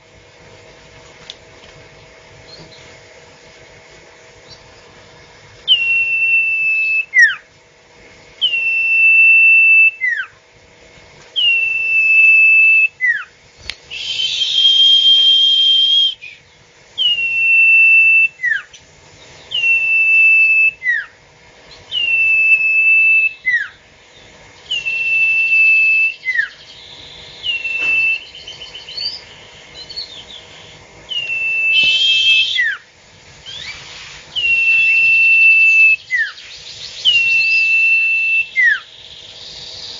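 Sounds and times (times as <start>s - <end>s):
bird whistling call: 5.6s - 7.5s, 8.4s - 10.4s, 11.4s - 13.3s, 13.9s - 23.8s, 24.6s - 39.9s.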